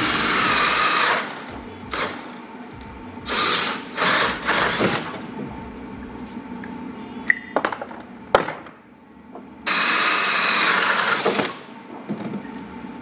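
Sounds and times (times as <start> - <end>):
power drill running: 0.0 - 2.4, 3.2 - 5.2, 9.7 - 11.8.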